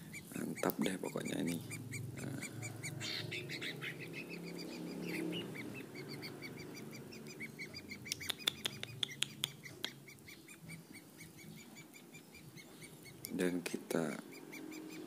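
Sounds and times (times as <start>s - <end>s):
small bird chirping: 0.0s - 15.0s
sharp clicks: 8.1s - 10.0s.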